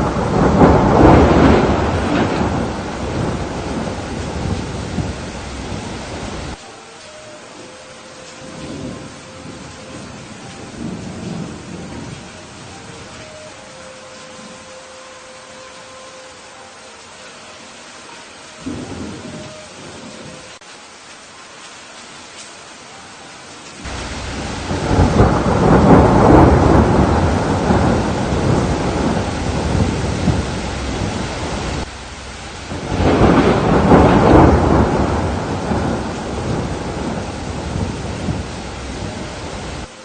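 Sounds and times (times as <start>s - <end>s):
thunder rolling: 0.0s - 6.6s, 8.4s - 13.3s, 18.6s - 20.4s, 23.8s - 39.9s
steady rain: 0.0s - 40.0s.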